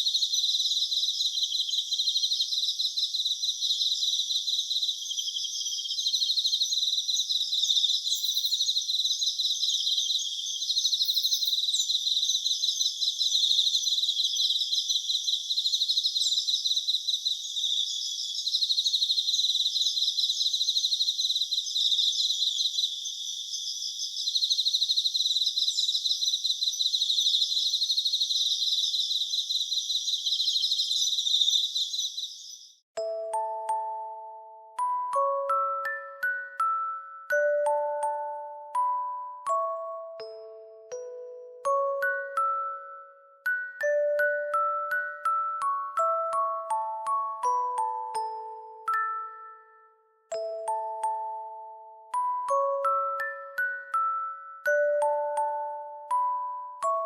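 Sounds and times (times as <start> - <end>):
insects chirping in trills: 0.0 - 32.8.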